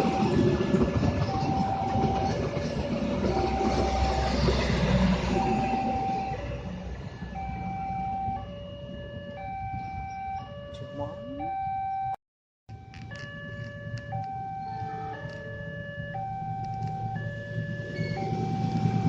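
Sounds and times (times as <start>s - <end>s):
diesel train passing: 0.0s - 8.6s, 16.0s - 19.0s
two-tone electronic warning alarm: 0.0s - 19.0s.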